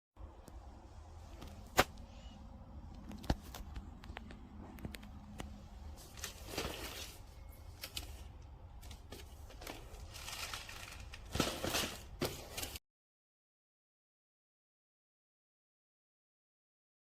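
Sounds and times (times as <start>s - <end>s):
packaging rustling and crinkling: 3.0s - 12.8s.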